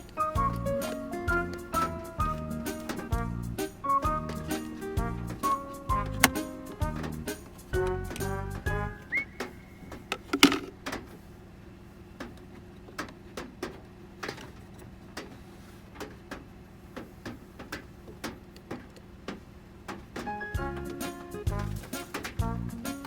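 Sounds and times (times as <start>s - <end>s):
hard plastic clicks and knocks: 5.3s - 8.3s, 9.4s - 11.2s.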